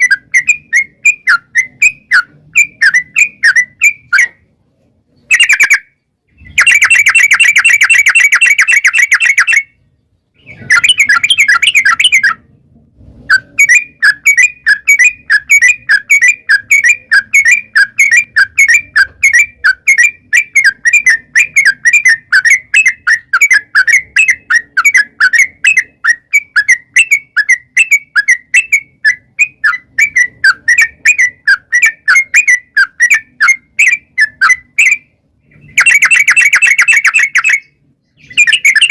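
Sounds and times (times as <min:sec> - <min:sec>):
bird chirping: 0:00.0 - 0:38.9
bulbul rattling trills: 0:06.4 - 0:09.8, 0:13.3 - 0:38.9.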